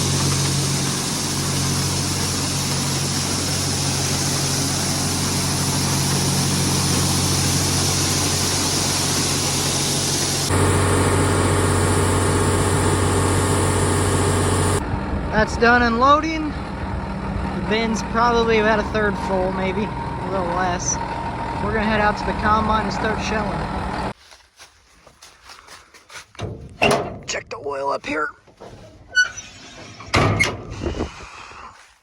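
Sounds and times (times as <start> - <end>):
corn pouring with rushing hiss: 0.0 - 14.8
truck engine running: 0.0 - 24.2.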